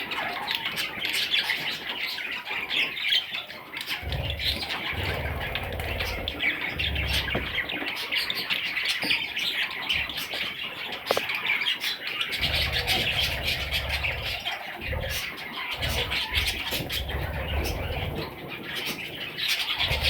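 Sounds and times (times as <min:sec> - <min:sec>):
budgerigars chattering and chirping: 0:00.0 - 0:20.0
low rumbling: 0:04.0 - 0:07.9, 0:12.4 - 0:18.7, 0:19.8 - 0:20.0.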